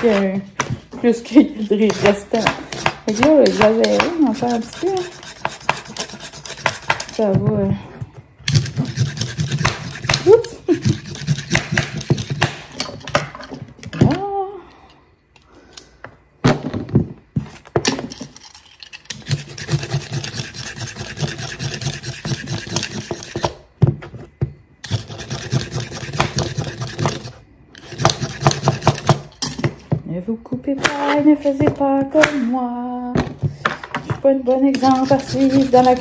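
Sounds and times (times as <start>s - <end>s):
knife chopping on wooden board: 1.8s - 7.6s, 8.5s - 12.8s, 24.9s - 27.3s, 27.9s - 29.8s.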